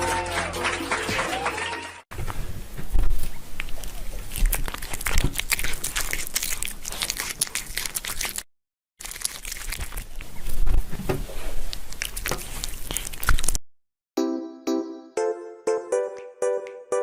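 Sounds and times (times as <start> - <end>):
material crinkling and crackling: 2.2 - 13.6.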